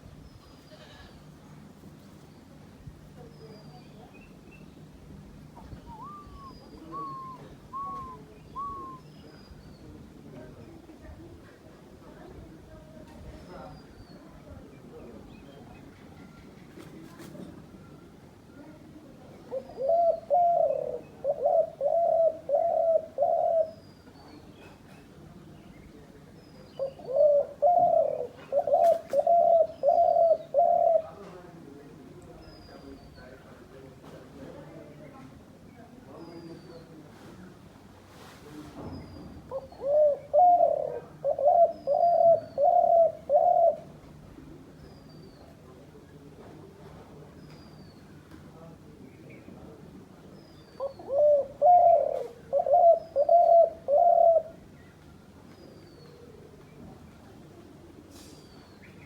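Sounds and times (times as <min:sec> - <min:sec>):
small birds chirping: 0:03.2 - 0:10.0, 0:44.8 - 0:45.6, 0:50.3 - 0:56.8
dove cooing: 0:05.8 - 0:09.1, 0:19.5 - 0:23.8, 0:26.8 - 0:31.2, 0:39.5 - 0:43.9, 0:50.8 - 0:54.6
bird whistling notes: 0:05.9 - 0:09.2.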